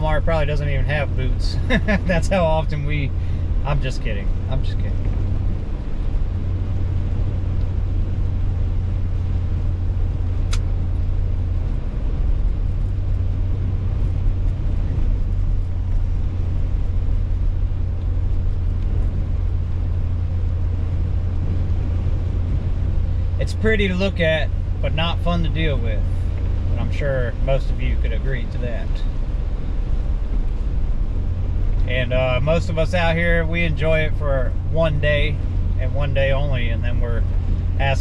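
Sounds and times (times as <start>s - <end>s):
car road and engine noise: 0.0s - 38.0s
brief click: 10.5s - 10.7s.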